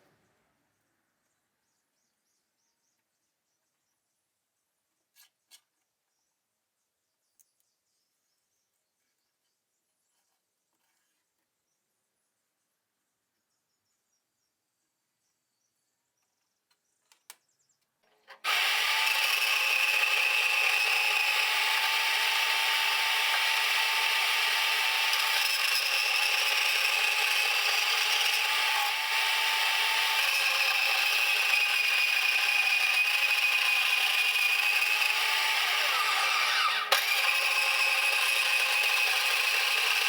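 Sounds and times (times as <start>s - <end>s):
power tool running: 18.4s - 40.0s.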